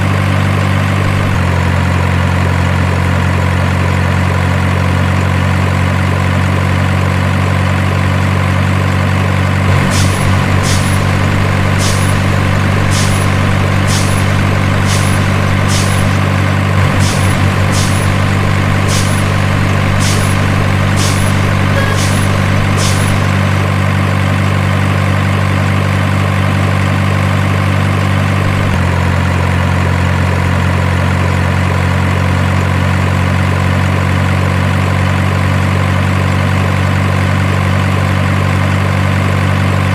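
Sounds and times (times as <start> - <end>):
truck engine idling: 0.0 - 3.1, 4.6 - 29.0.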